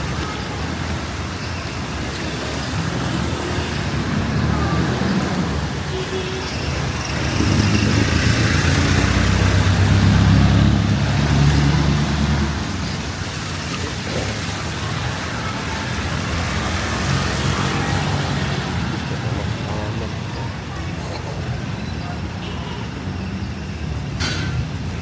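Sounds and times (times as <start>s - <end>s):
street traffic noise: 0.0s - 25.0s
vehicle engine passing by: 7.0s - 13.1s, 13.7s - 22.4s.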